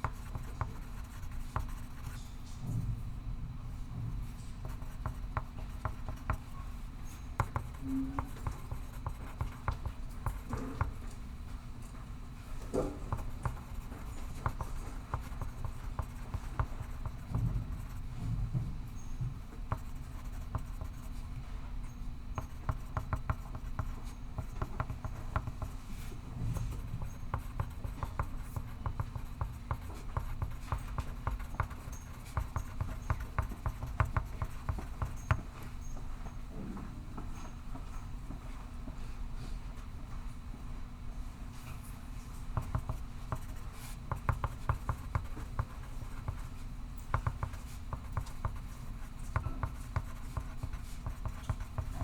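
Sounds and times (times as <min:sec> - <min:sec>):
pencil scratching on paper: 0:00.0 - 0:02.2, 0:04.6 - 0:06.5, 0:07.1 - 0:11.0, 0:13.0 - 0:18.1, 0:19.7 - 0:21.3, 0:22.4 - 0:25.8, 0:26.6 - 0:35.4, 0:42.6 - 0:46.5, 0:47.1 - 0:52.0.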